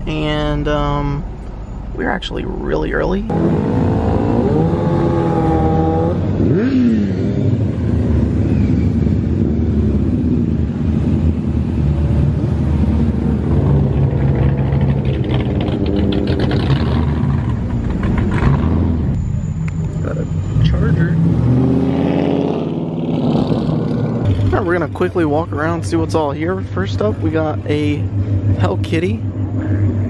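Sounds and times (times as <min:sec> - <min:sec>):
car engines running: 0:00.0 - 0:30.0
engine rev blip: 0:13.6 - 0:30.0.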